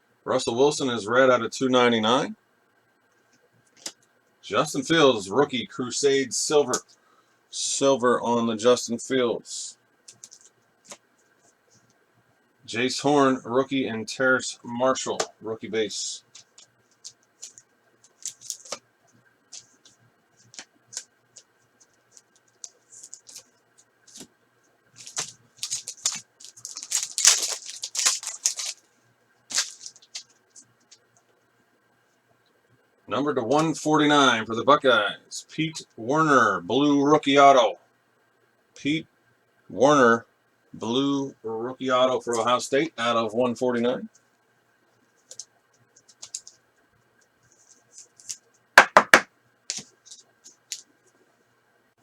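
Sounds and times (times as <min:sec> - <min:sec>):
wrapper rustling: 0:16.3 - 0:18.8, 0:19.5 - 0:24.3, 0:24.9 - 0:28.9, 0:29.5 - 0:31.0, 0:45.2 - 0:46.6.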